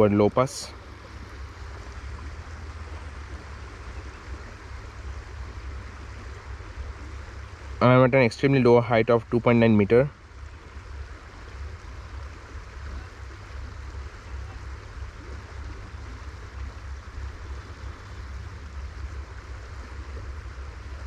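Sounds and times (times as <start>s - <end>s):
river water flowing: 0.0s - 21.0s.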